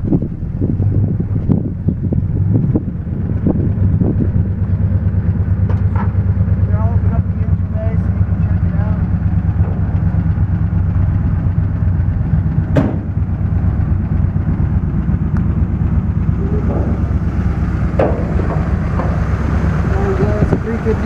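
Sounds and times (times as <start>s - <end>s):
engine idling: 0.0s - 21.0s
sharp clunks: 9.6s - 10.0s, 12.7s - 13.2s, 17.9s - 19.3s.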